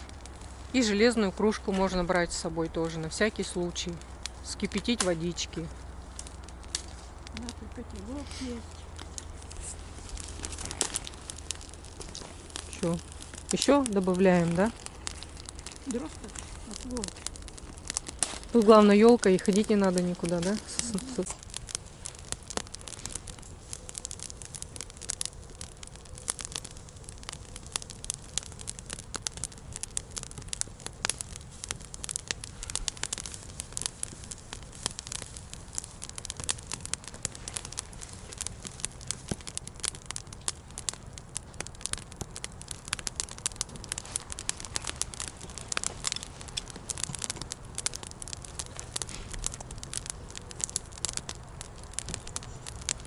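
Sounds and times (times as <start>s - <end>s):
campfire crackling and popping: 0.0s - 53.0s.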